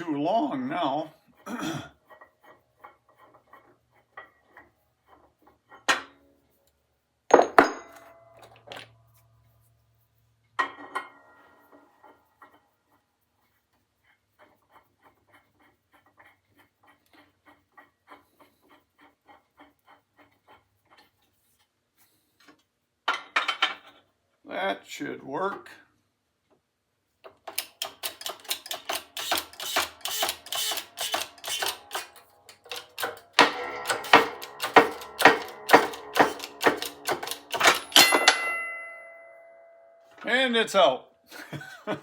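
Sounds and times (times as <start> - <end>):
metal tools clanking: 7.3 - 8.9, 27.5 - 39.4.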